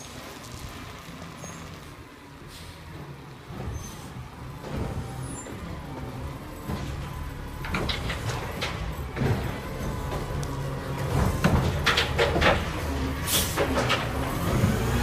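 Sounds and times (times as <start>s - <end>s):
garbage truck engine running: 0.0s - 15.0s
clanks and knocks: 4.5s - 14.8s.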